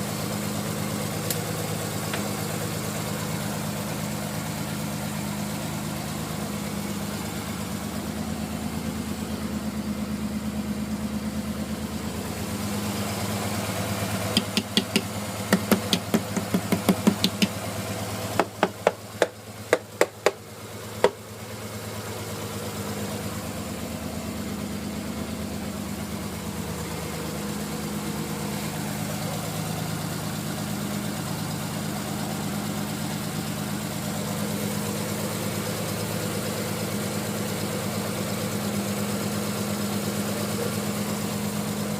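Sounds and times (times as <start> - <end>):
car engine idling with misfire: 0.0 - 41.9
loud sharp engine knocks: 14.3 - 17.6, 18.4 - 20.4.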